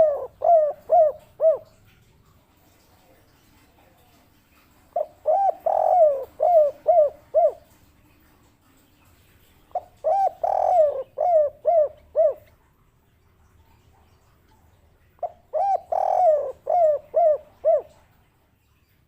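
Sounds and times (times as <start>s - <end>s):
dove cooing: 0.0s - 1.8s, 5.0s - 7.8s, 9.7s - 12.6s, 15.2s - 18.1s.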